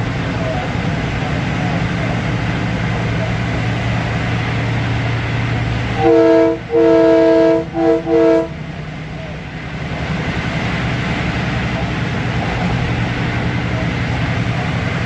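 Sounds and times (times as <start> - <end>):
electric train rumbling: 0.0 - 15.0
multi-note train horn blasts: 5.9 - 8.7.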